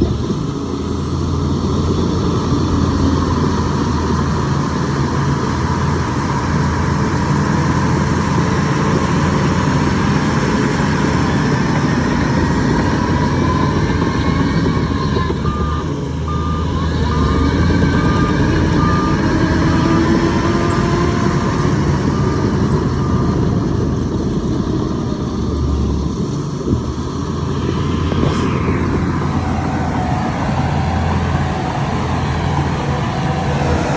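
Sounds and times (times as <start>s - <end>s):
heavy diesel engine running: 0.0s - 33.9s
reversing alarm beeping: 12.8s - 21.0s.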